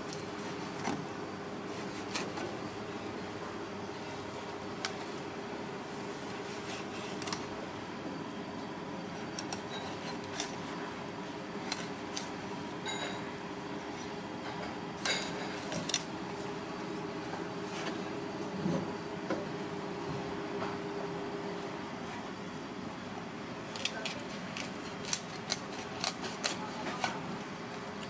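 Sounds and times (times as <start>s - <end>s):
dishes and utensils clinking: 12.8s - 13.3s, 14.5s - 15.7s.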